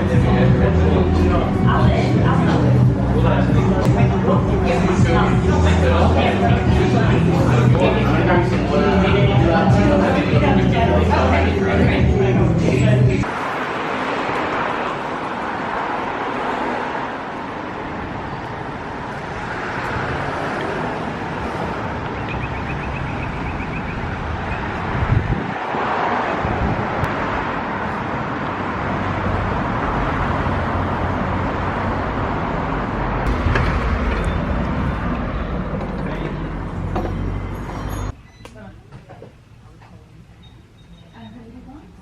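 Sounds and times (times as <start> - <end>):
road traffic noise: 0.0 - 42.0
low rumble: 32.7 - 38.2.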